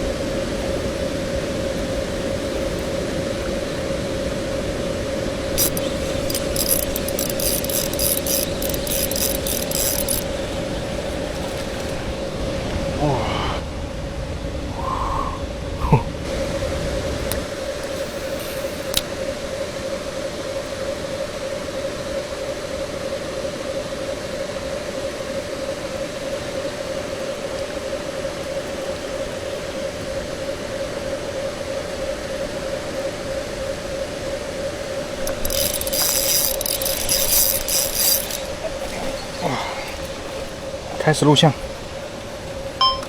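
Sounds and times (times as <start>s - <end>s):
fishing reel whirring: 5.4s - 12.4s, 17.3s - 19.2s, 35.1s - 40.9s
fast clicking rattle: 5.5s - 12.0s, 17.3s - 19.1s, 35.2s - 39.2s
noisy hiss: 16.3s - 19.4s.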